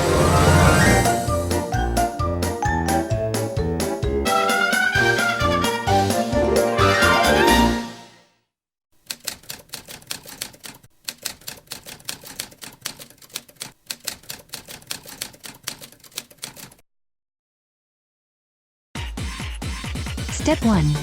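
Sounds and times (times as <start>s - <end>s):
typewriter keys clacking: 9.0s - 16.8s.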